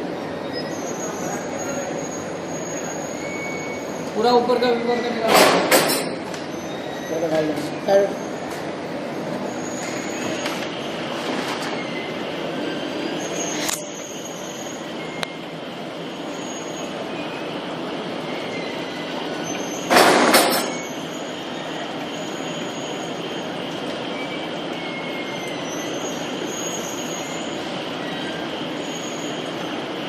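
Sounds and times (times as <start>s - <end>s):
faint high squeaks: 0.4s - 4.1s, 6.5s - 8.4s, 11.5s - 15.4s
loud burst of noise: 18.8s - 23.6s.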